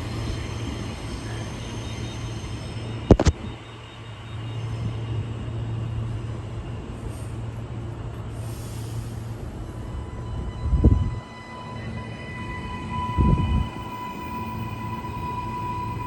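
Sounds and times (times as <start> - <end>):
train rumbling: 0.0 - 16.0
air hissing: 8.4 - 9.4.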